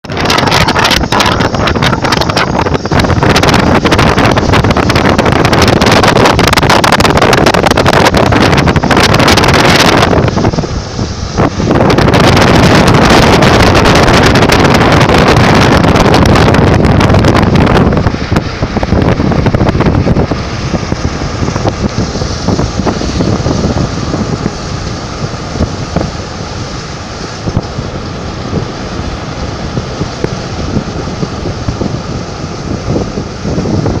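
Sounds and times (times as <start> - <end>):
storm wind buffeting microphone: 0.0 - 34.0.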